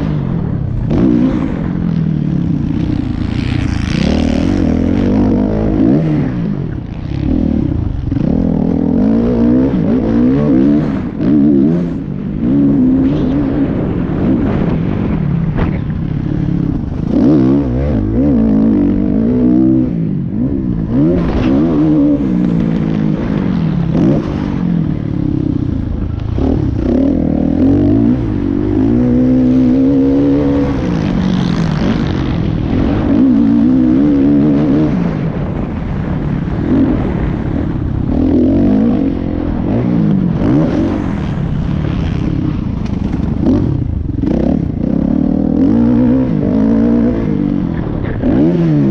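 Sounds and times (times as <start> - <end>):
motocross bike engine revving: 0.0 - 48.9.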